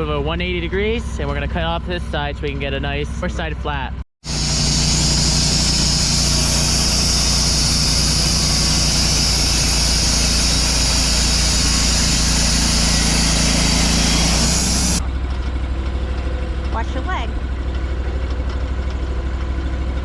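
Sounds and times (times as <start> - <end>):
gas engine running under load: 0.0 - 20.0
saw blade cutting log: 4.2 - 15.0.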